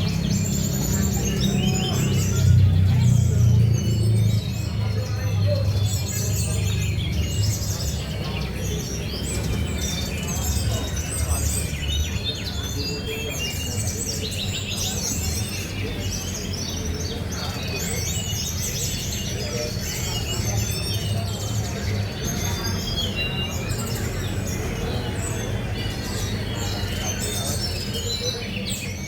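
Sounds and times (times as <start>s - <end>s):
birds chirping and trilling: 0.0s - 29.0s
low crowd rumble: 0.0s - 29.0s.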